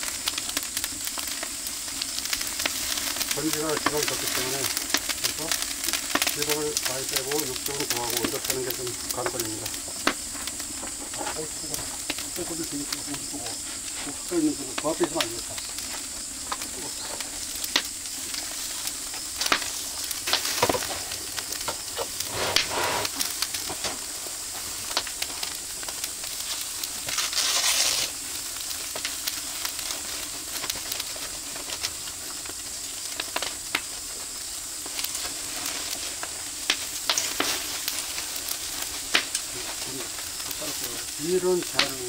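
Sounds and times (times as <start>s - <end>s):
fire crackling: 0.0s - 42.0s
meat sizzling on a grill: 0.0s - 42.0s.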